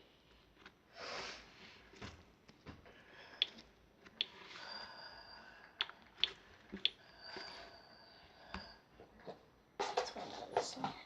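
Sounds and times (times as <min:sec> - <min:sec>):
person breathing: 0:02.8 - 0:03.7, 0:04.3 - 0:09.0.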